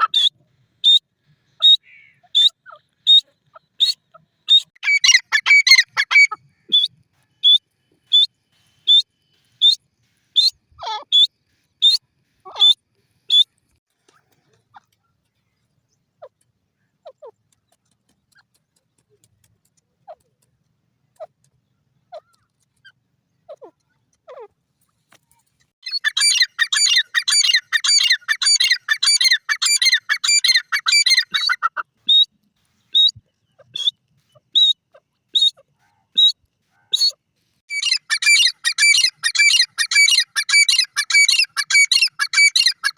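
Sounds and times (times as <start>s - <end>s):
francolins calling: 1.6s - 8.2s, 25.8s - 32.3s, 36.9s - 42.9s
rapid chattering bird calls: 25.8s - 42.9s.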